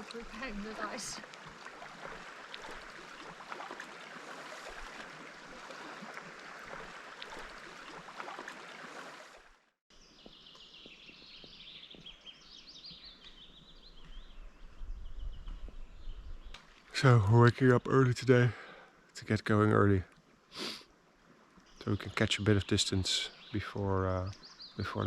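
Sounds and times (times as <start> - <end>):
small birds chirping: 9.9 - 18.3, 21.5 - 25.0.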